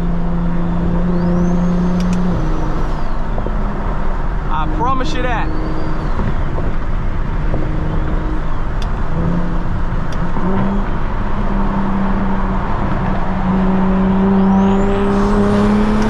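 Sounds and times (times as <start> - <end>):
car engine accelerating: 0.0 - 16.0
sharp clicks: 2.0 - 2.3.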